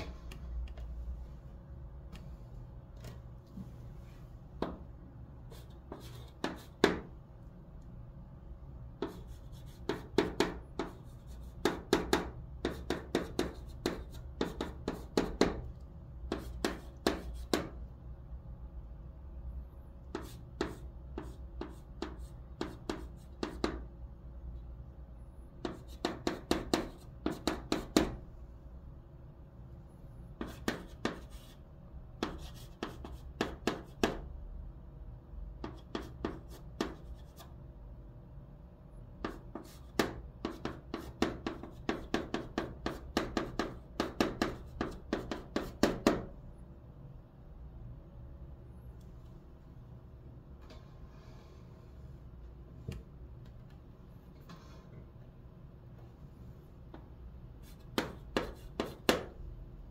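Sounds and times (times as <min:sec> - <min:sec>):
chalk tapping and scratching on blackboard: 0:05.4 - 0:07.1, 0:09.0 - 0:17.8, 0:20.0 - 0:23.9, 0:25.6 - 0:28.2, 0:30.3 - 0:31.6, 0:32.2 - 0:34.3, 0:35.6 - 0:37.6, 0:39.2 - 0:46.3, 0:57.6 - 0:59.4.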